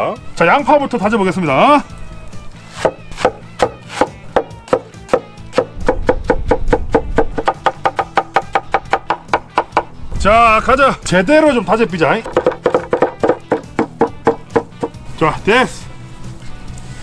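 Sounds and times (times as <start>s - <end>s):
background music: 0.0s - 17.0s
knife chopping on cutting board: 2.7s - 9.9s, 12.3s - 15.0s.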